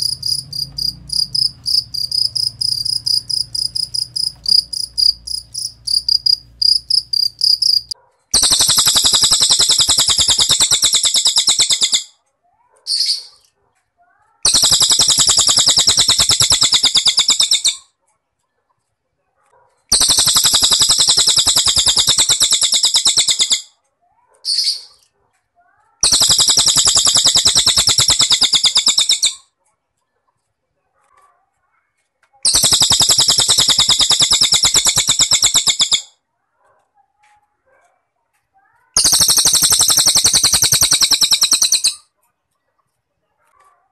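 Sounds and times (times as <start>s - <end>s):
cricket chirping: 0.0s - 12.0s, 14.5s - 17.7s, 19.9s - 23.6s, 26.0s - 29.3s, 32.5s - 36.0s, 39.0s - 42.0s
bird high-pitched trills: 0.0s - 12.1s, 14.4s - 17.8s, 19.9s - 23.7s, 26.0s - 29.4s, 32.5s - 36.1s, 39.0s - 42.0s.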